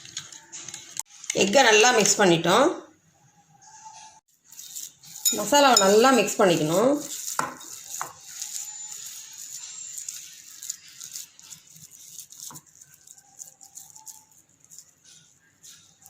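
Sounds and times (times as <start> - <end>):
food mixing in a bowl: 0.0 - 2.7, 4.2 - 16.0.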